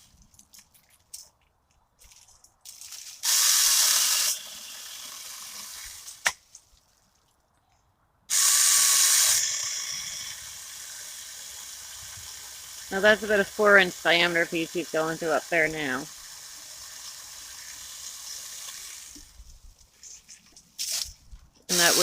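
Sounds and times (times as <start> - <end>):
chainsaw cutting a branch: 3.0 - 6.4, 8.3 - 19.4, 21.7 - 22.0.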